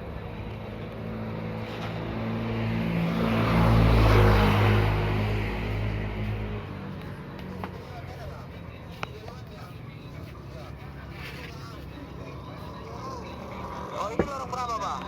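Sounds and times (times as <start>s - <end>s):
vehicle engine passing by: 0.2s - 8.6s.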